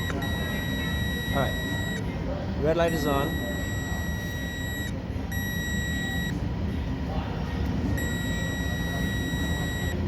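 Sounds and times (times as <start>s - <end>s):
battery charger buzzer beeping: 0.0s - 2.0s, 2.8s - 6.4s, 8.0s - 10.0s.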